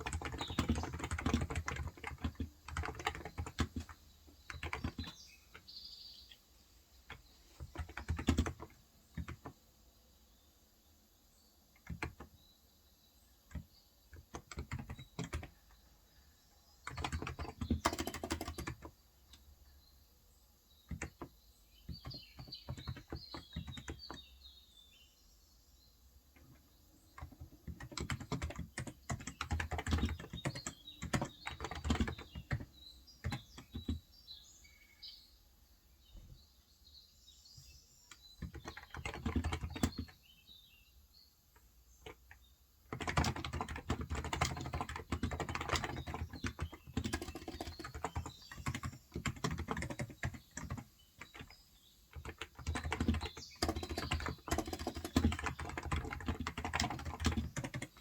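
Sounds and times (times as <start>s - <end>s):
typing on a keyboard: 0.0s - 5.8s, 7.1s - 9.6s, 11.8s - 12.4s, 13.5s - 15.8s, 16.8s - 19.5s, 20.9s - 24.3s, 26.4s - 34.1s, 38.1s - 40.2s, 41.6s - 58.0s
birds chirping faintly: 0.0s - 58.0s.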